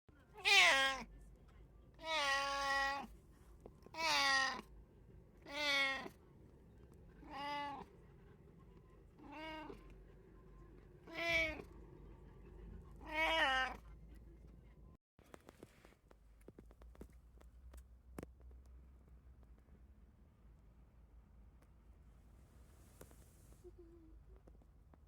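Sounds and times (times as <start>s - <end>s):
cat meowing: 0.4s - 1.1s, 2.0s - 3.1s, 3.8s - 4.7s, 5.4s - 6.2s, 7.2s - 7.9s, 9.2s - 9.9s, 11.0s - 11.7s, 13.0s - 13.8s.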